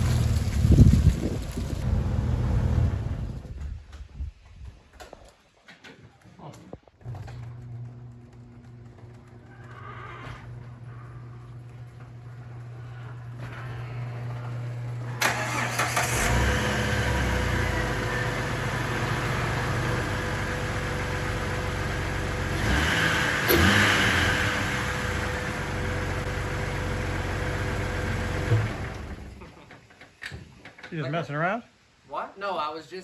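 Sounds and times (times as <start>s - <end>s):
car engine starting and running: 0.0s - 3.9s, 13.5s - 29.5s.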